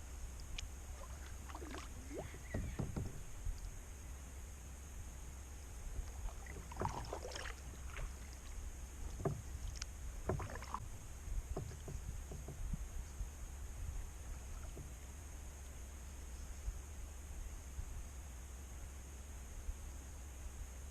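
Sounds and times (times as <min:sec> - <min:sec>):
kayak paddle splashing water: 0:00.8 - 0:03.5, 0:06.0 - 0:12.8.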